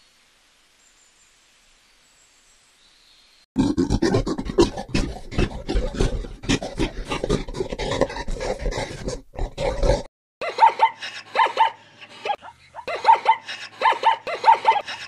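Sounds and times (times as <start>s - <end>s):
bears growling and roaring: 3.6s - 10.1s.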